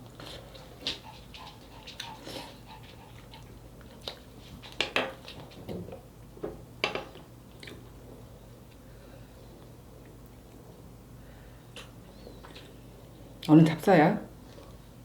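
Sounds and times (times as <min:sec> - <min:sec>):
chewing: 0:00.0 - 0:05.5, 0:11.7 - 0:12.8.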